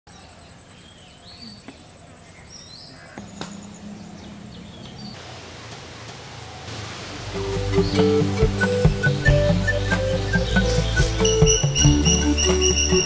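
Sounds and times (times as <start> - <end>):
bird chirps: 0.1 - 5.2, 7.7 - 13.0
background hiss: 0.1 - 13.0.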